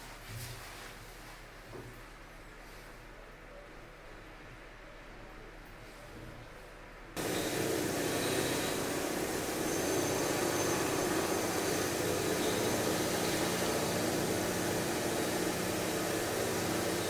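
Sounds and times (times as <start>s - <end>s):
construction machinery drone: 7.2s - 17.0s.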